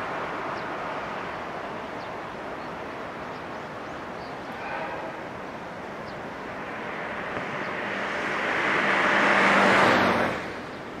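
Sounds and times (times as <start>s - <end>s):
electric train running past: 0.0s - 11.0s
low hum: 4.4s - 10.8s.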